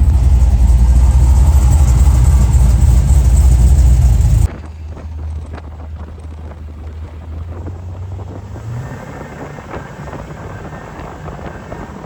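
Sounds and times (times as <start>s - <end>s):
quiet low rumble: 0.0s - 8.4s
vehicle engine and road rumble: 0.0s - 12.0s.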